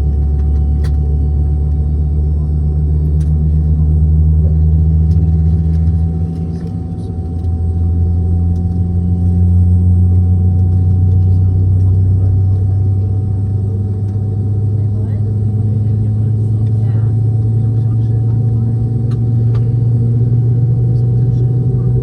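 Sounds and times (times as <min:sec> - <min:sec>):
airplane cabin drone: 0:00.0 - 0:22.0
faint steady whine: 0:00.0 - 0:22.0.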